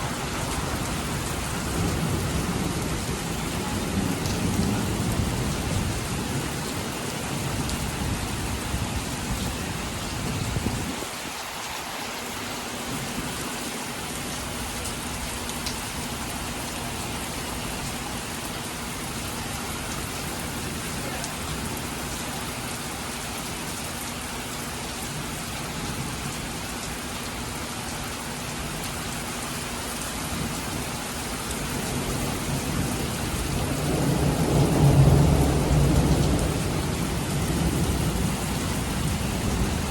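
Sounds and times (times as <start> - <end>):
heavy rain pouring: 0.0 - 39.9
low thunder rumble: 31.8 - 39.9.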